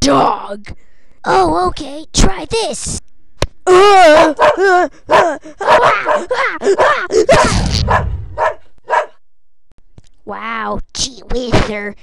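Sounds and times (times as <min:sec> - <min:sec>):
dog barking and snarling: 0:04.1 - 0:09.2.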